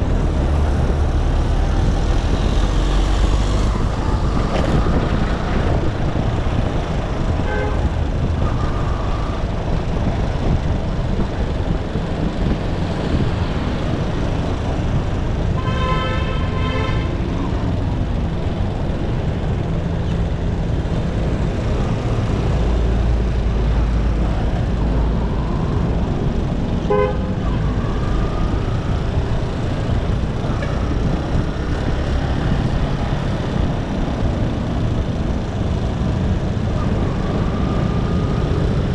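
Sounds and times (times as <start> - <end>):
road and wind noise: 0.0 - 38.9
vehicle horn honking: 7.4 - 8.9, 15.6 - 17.2, 26.8 - 27.6.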